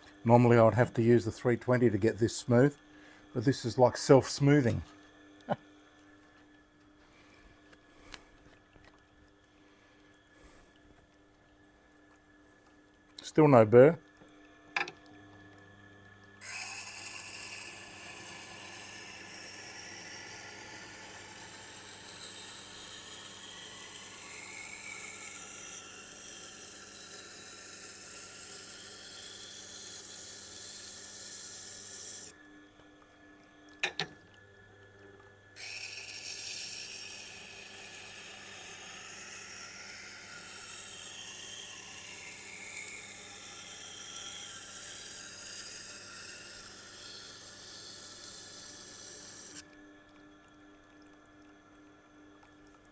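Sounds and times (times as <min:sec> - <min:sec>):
grinder motor hum: 0:00.0 - 0:05.6, 0:13.2 - 0:33.0, 0:33.8 - 0:50.1
steel grinding on wet stone: 0:16.4 - 0:32.3, 0:35.6 - 0:49.6.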